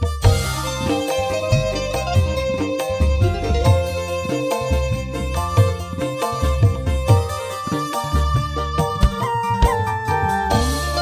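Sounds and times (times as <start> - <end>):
band playing a song: 0.0 - 11.0
heavy bass beat: 8.2 - 11.0.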